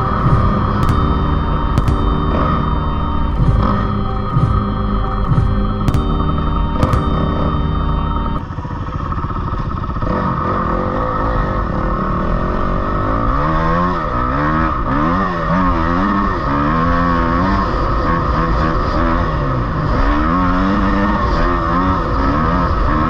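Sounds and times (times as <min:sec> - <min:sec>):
steady rushing noise: 0:00.0 - 0:09.4.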